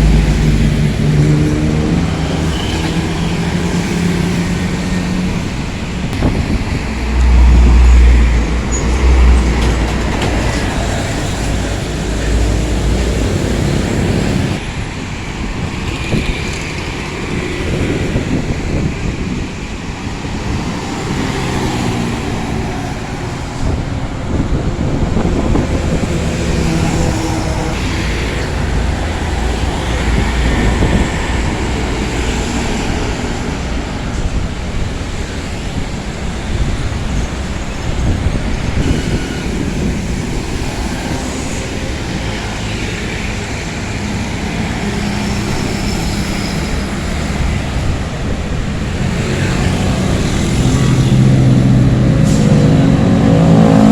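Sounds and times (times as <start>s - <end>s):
large vehicle engine running: 0.0s - 16.8s
road and traffic noise: 0.0s - 53.9s.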